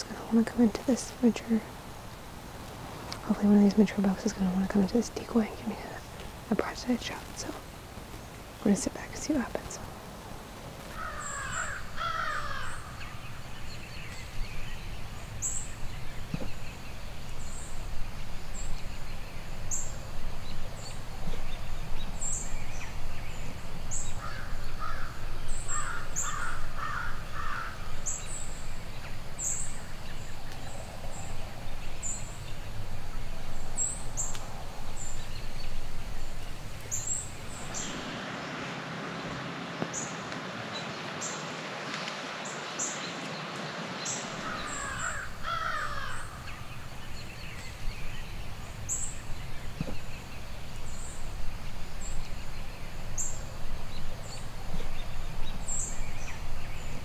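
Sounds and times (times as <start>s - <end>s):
birds chirping: 0.0s - 57.0s
wind rumble: 0.0s - 57.0s
harsh bird calls: 10.8s - 38.6s, 42.4s - 57.0s.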